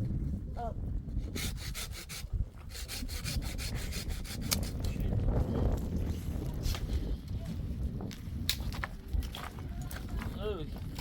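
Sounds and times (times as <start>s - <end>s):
hand saw cutting wood: 1.3s - 4.8s.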